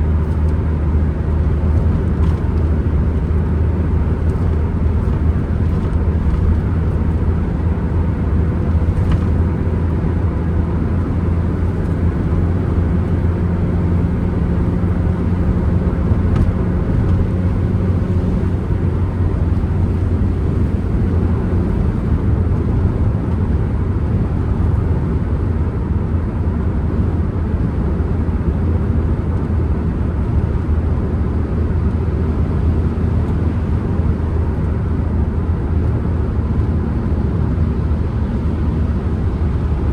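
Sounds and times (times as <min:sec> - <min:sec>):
road and wind noise: 0:00.0 - 0:39.9
van engine drone: 0:00.0 - 0:39.9.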